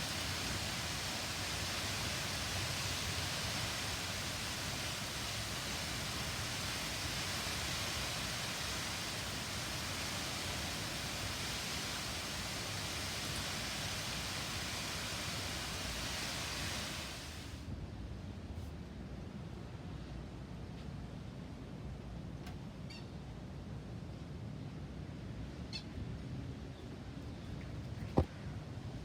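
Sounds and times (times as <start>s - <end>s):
rain hissing: 0.0s - 17.7s.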